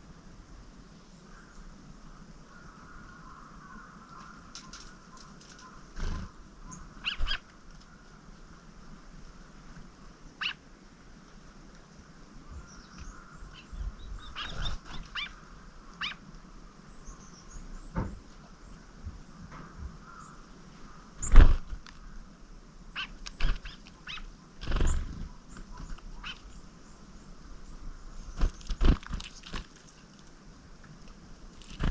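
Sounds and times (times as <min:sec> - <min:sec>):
birds chirping: 0:02.5 - 0:08.4, 0:09.9 - 0:10.7, 0:12.3 - 0:30.1.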